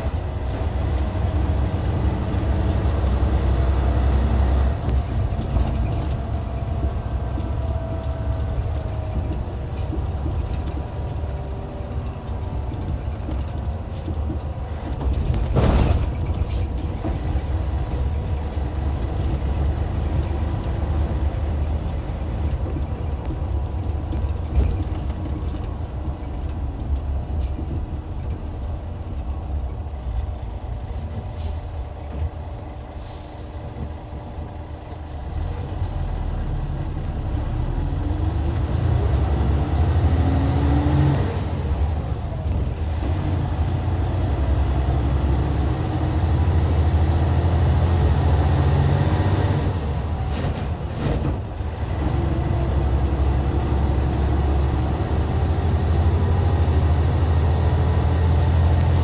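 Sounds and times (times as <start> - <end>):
bus diesel engine rumbling: 0.0 - 59.0
air brake burst: 33.0 - 33.8.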